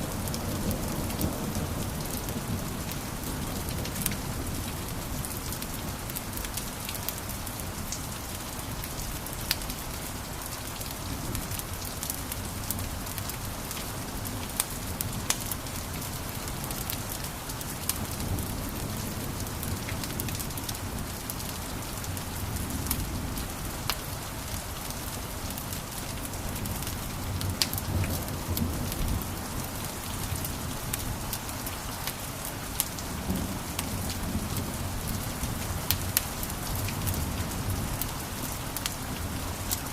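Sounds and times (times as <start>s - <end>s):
wood fire crackling and popping: 35.8s - 39.0s.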